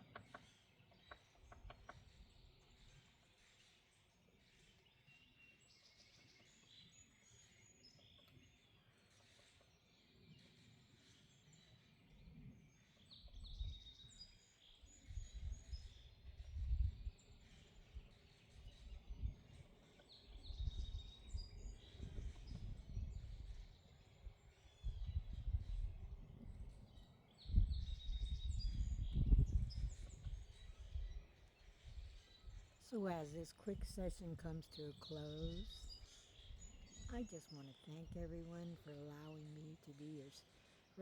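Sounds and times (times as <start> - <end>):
wild birds chirping: 0.0 - 41.0
low rumbling gusts: 27.5 - 31.1.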